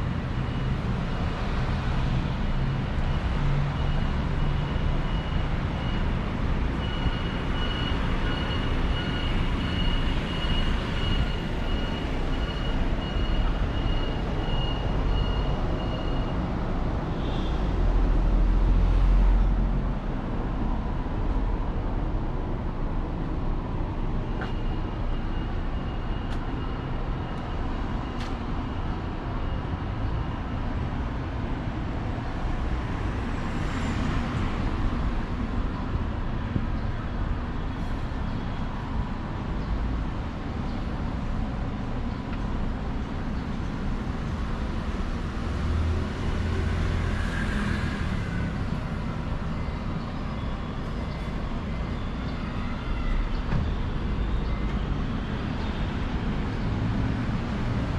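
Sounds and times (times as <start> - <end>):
road traffic hum: 0.0 - 57.9
vehicles passing: 0.0 - 57.9.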